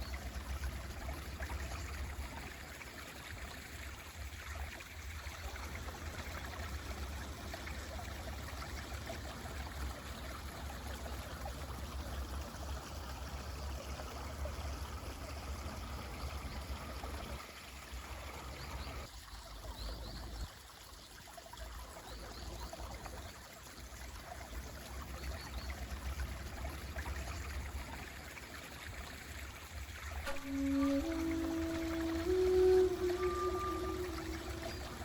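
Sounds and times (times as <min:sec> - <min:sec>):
stream rushing: 0:30.2 - 0:35.0.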